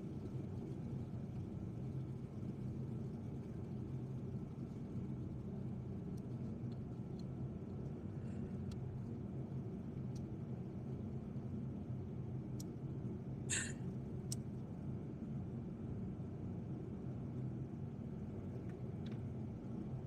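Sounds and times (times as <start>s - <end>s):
low background rumble: 0.0s - 20.0s
faint light clicks: 10.1s - 10.3s, 14.3s - 14.5s.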